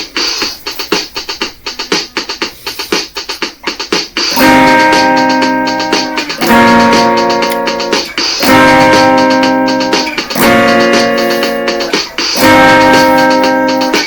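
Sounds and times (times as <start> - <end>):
guitar slow strummed chords: 4.3 - 14.0.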